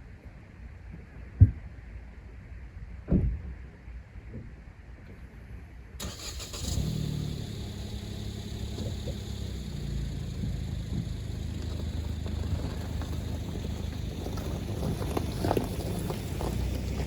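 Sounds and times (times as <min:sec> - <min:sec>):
car engine starting and idling: 0:06.0 - 0:17.0.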